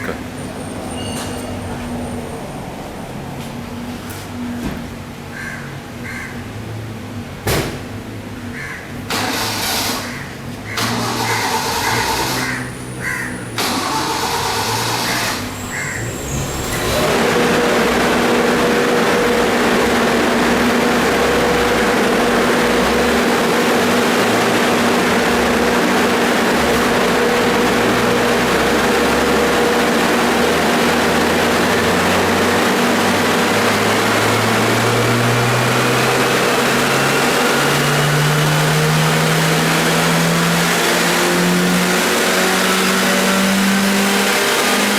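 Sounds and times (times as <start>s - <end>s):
loud steady engine drone: 0.0s - 44.9s
car engine on dynamometer: 9.1s - 44.9s.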